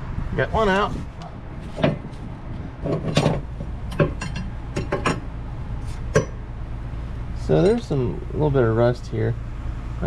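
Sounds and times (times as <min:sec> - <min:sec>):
steady low hum: 0:00.0 - 0:10.0
metal parts clinking and knocking: 0:02.8 - 0:05.3.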